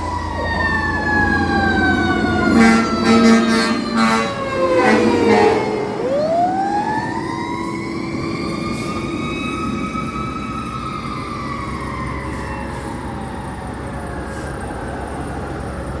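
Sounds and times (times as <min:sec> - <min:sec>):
fire truck siren: 0:00.0 - 0:16.0
truck engine rumble: 0:00.0 - 0:16.0.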